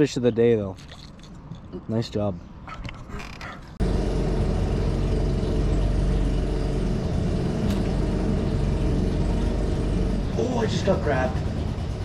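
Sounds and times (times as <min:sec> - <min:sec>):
outboard motor running: 0:03.8 - 0:12.0.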